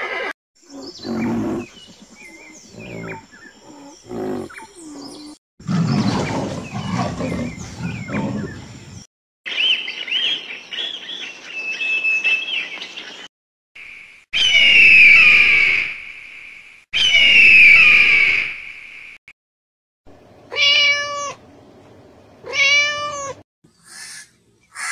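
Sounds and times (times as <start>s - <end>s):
low rough animal call: 0.6s - 8.9s
shrill whistling cry: 14.4s - 15.8s, 17.0s - 18.5s.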